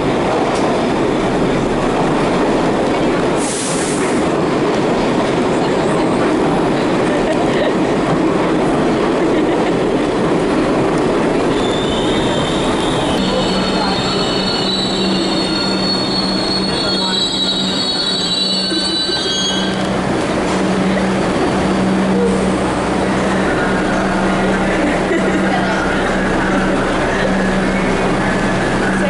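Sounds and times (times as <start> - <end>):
train rumbling: 0.0 - 29.0
metal wheels squealing: 11.4 - 20.7.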